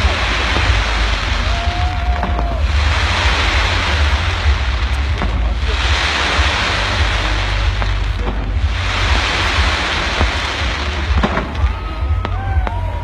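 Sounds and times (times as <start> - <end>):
fireworks rumbling and popping: 0.0 - 13.0.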